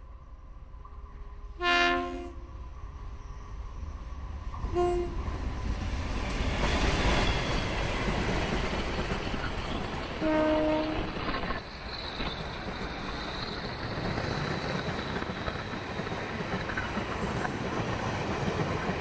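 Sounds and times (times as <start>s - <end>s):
train rumbling: 0.0s - 19.0s
diesel locomotive horn: 1.6s - 2.5s, 4.7s - 5.2s, 10.2s - 11.3s.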